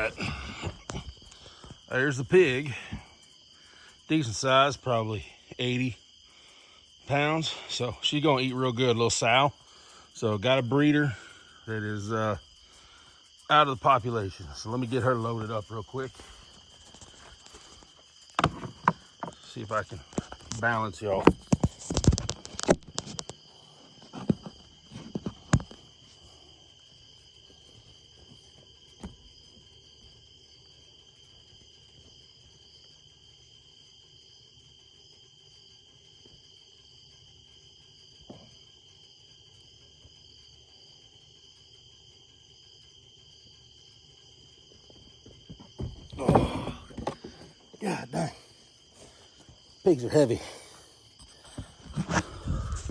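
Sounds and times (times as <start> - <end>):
night insects chorus: 0.0 - 52.9
thumping and scuffling: 17.0 - 19.4, 45.3 - 48.2, 51.3 - 52.9
faint knocks: 18.3 - 19.4.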